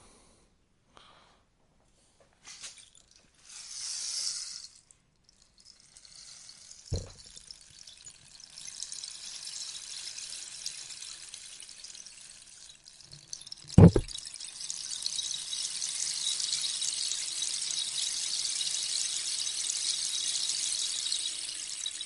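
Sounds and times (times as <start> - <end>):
rainstick pellets trickling: 2.4 - 22.0
soft knock: 13.8 - 14.1.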